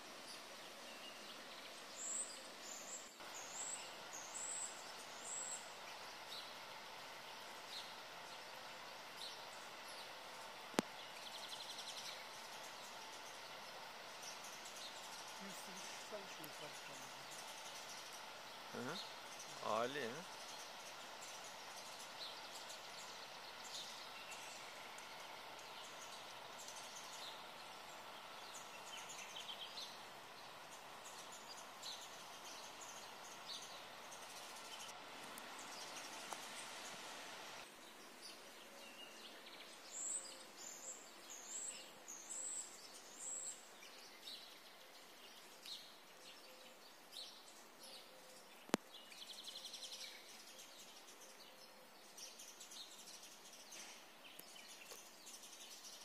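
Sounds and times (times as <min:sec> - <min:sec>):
small birds calling: 0:00.0 - 0:56.0
steady rushing hiss: 0:00.0 - 0:56.0.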